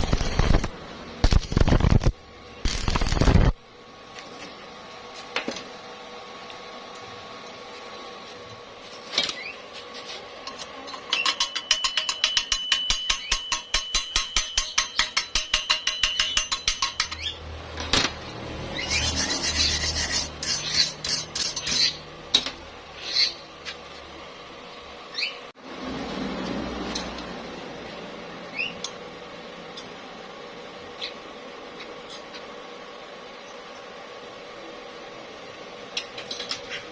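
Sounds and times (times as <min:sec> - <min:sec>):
steady high ring: 0:10.9 - 0:17.2
rough scraping: 0:18.8 - 0:22.0
hand tool rasping on metal: 0:18.9 - 0:22.0.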